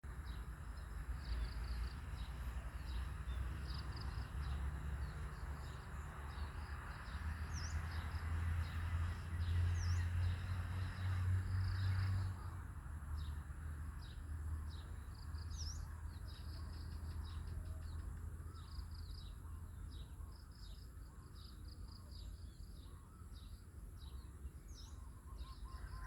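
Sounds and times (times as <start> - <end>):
small birds chirping: 14.0 - 26.0.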